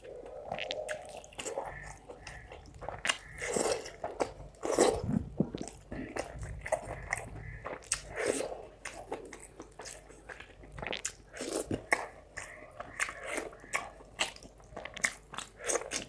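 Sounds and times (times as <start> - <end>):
wet chewing and lip smacks: 0.0 - 16.0.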